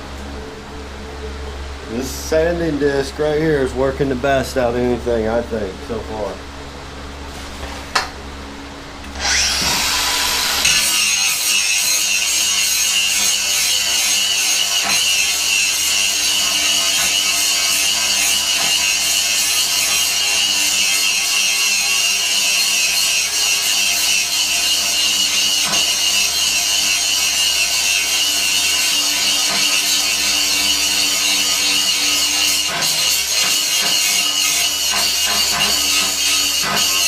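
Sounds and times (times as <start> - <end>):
angle grinder sanding steel: 9.2 - 37.0.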